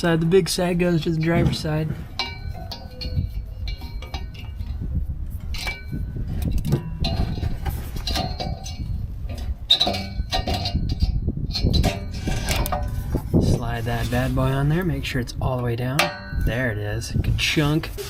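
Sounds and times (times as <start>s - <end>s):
metallic clinks and knocks: 1.2s - 13.3s.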